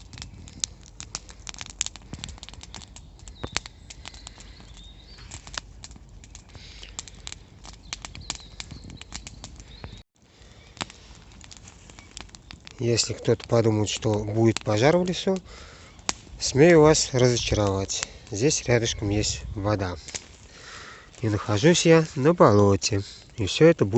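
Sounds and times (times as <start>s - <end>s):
campfire crackling and popping: 0.0s - 23.9s.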